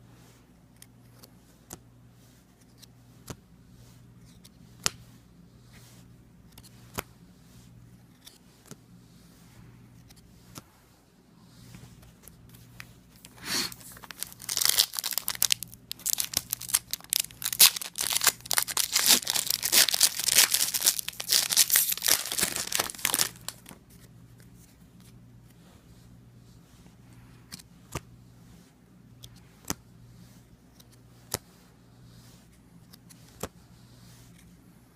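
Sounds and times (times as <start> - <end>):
wrapper tearing and crinkling: 13.7 - 23.8.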